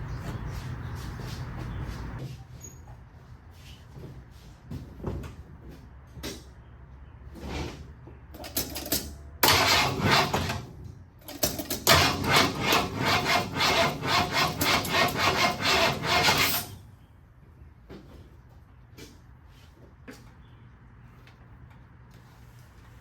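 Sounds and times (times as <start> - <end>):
starter cranking engine: 9.4 - 10.7, 11.8 - 16.5.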